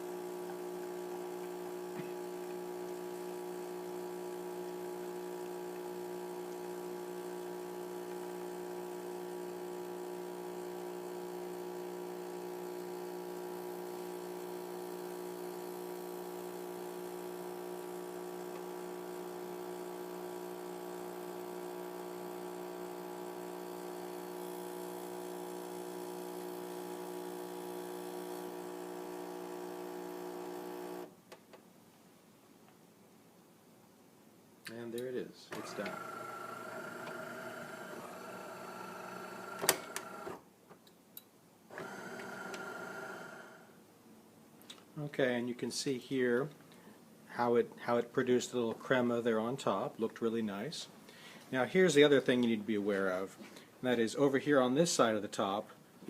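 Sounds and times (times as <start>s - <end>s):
espresso machine pump humming: 0.0s - 31.1s, 35.5s - 40.4s, 41.7s - 43.6s.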